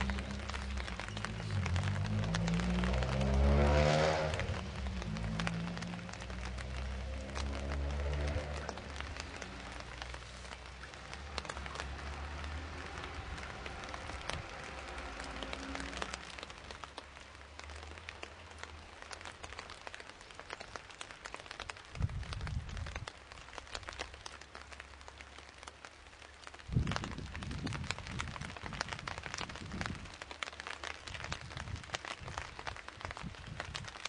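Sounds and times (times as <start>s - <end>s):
raindrops ticking: 0.0s - 34.0s
steady rain: 0.0s - 34.0s.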